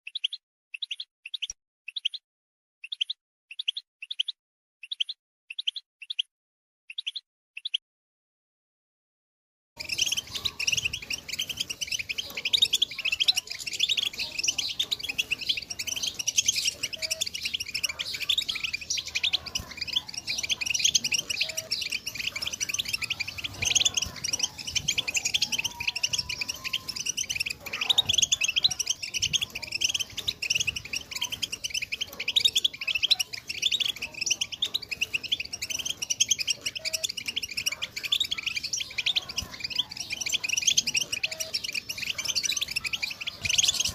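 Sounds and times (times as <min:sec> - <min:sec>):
goldfinches twittering: 0:09.8 - 0:43.9.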